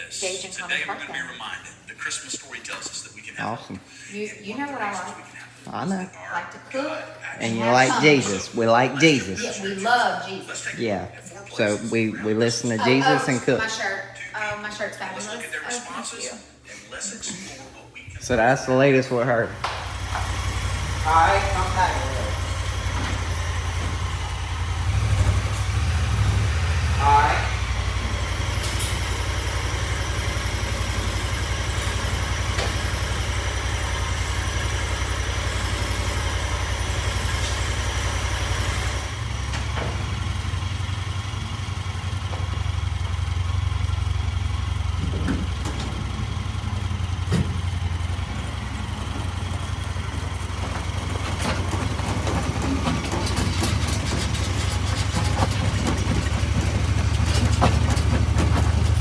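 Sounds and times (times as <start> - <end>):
vehicle engine idling: 19.4 - 59.0.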